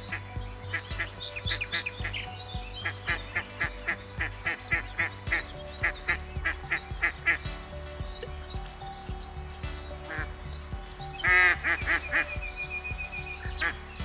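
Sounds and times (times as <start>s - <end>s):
birds calling rapidly: 0.0s - 14.0s
higher bird chirps: 0.0s - 14.0s.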